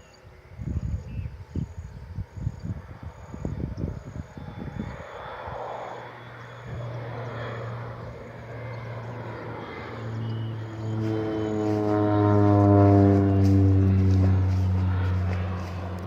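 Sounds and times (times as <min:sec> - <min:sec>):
propeller plane flying past: 0:00.0 - 0:16.0.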